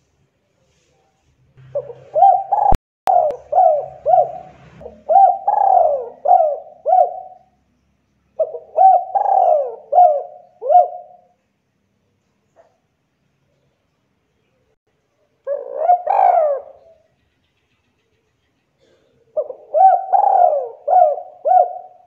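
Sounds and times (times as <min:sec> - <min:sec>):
dove cooing: 0:01.6 - 0:07.6, 0:08.4 - 0:11.4, 0:15.4 - 0:17.0, 0:18.8 - 0:22.0.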